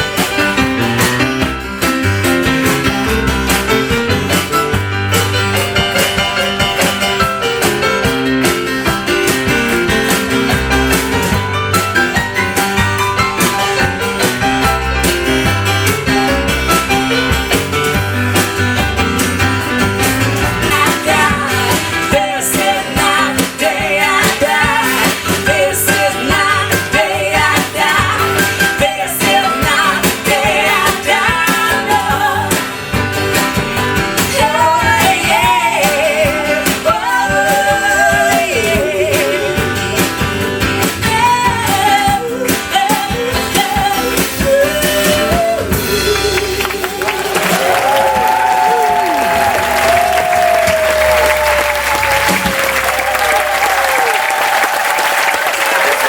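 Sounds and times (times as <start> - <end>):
guitar accompaniment: 0.0 - 54.6
person singing: 20.7 - 32.5, 41.2 - 47.4.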